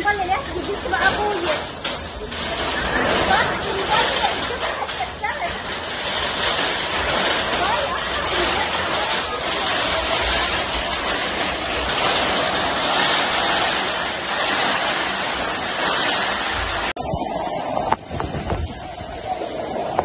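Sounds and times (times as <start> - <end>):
torrential rain pouring: 0.0 - 20.0
wind gusting on microphone: 9.2 - 20.0.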